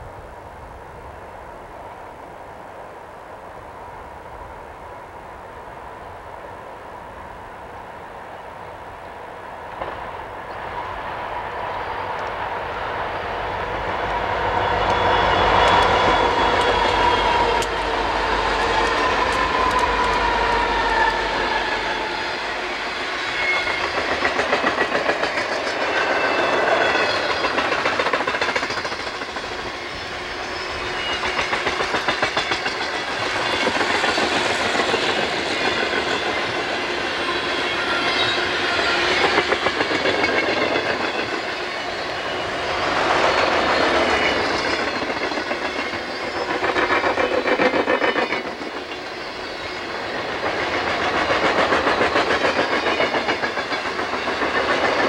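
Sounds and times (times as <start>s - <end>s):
freight train wheels clattering: 14.0s - 55.0s.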